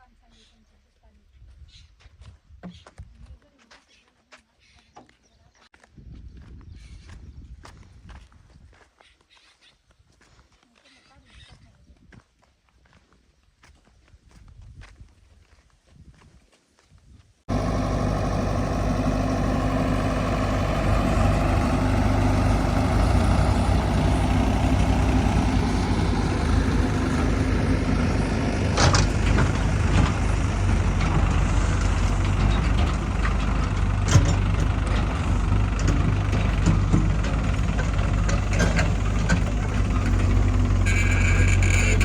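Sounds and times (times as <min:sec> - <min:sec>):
heavy diesel engine running: 0:17.5 - 0:42.0.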